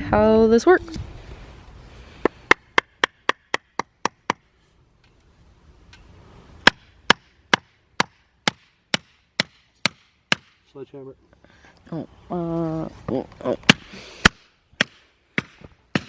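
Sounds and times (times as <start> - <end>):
hammer striking wood: 2.5 - 4.5, 6.6 - 10.6, 13.7 - 16.0.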